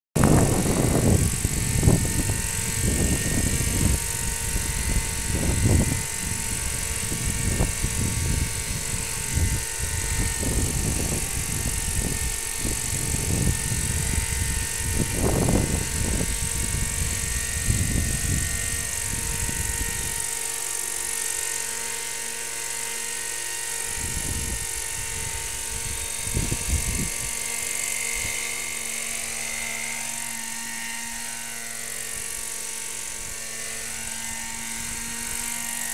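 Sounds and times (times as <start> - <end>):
wind on microphone: 0.2 - 20.4, 23.8 - 29.6
model aircraft engine whining: 0.2 - 35.9.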